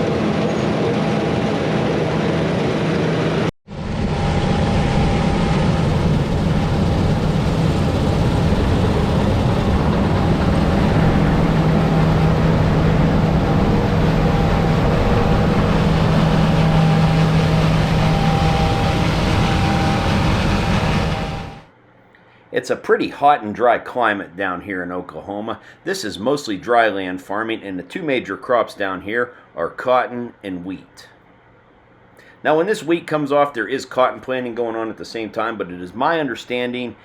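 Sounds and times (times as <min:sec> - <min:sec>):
harvest machinery running: 0:00.0 - 0:21.7.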